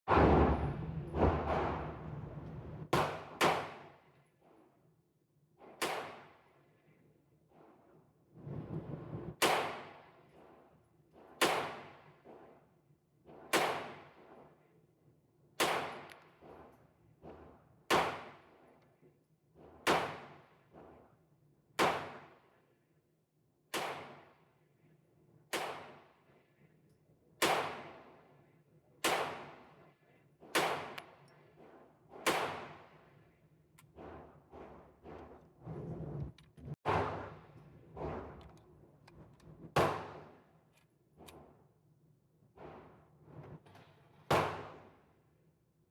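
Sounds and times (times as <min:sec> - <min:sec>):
gunshots with echoing tail: 0:00.1 - 0:03.8.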